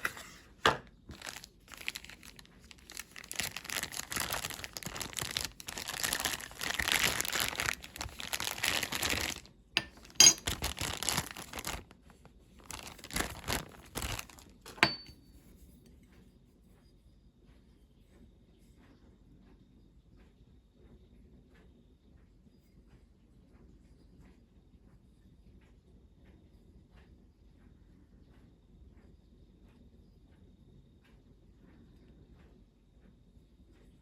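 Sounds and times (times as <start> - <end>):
packaging crinkling and tearing: 1.1 - 15.1.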